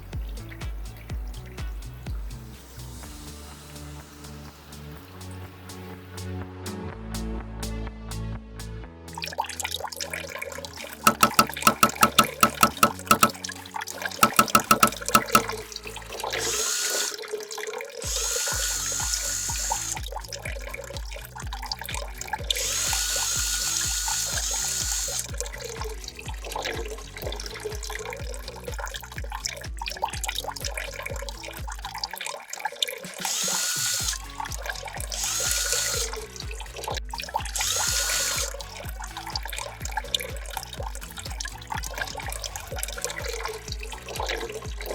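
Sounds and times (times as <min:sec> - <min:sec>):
background music with steady beat: 0:00.0 - 0:09.6, 0:10.8 - 0:16.6, 0:18.1 - 0:32.2, 0:33.0 - 0:44.9
rapid clicking: 0:11.0 - 0:13.4, 0:14.1 - 0:15.6
water running from a tap: 0:14.1 - 0:44.9.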